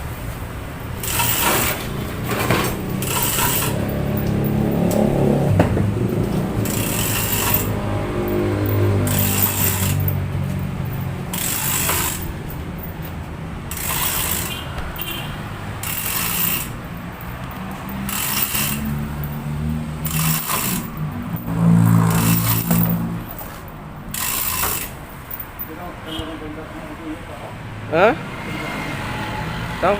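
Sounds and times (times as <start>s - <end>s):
ratchet clicking: 1.0s - 5.2s, 6.6s - 10.2s, 10.9s - 15.2s, 15.8s - 25.7s.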